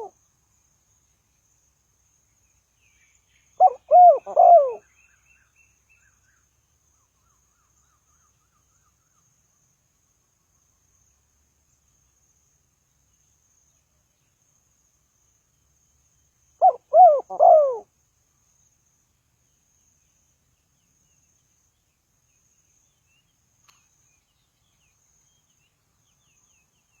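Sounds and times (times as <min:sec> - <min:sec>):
dove cooing: 0:03.6 - 0:04.8, 0:16.6 - 0:17.9.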